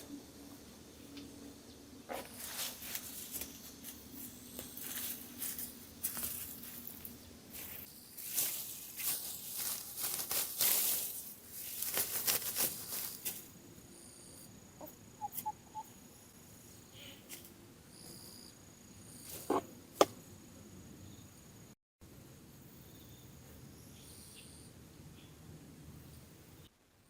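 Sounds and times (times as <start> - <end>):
insects chirping: 0.0 - 21.8, 22.5 - 25.3
foliage rustling and crackling: 2.1 - 13.6.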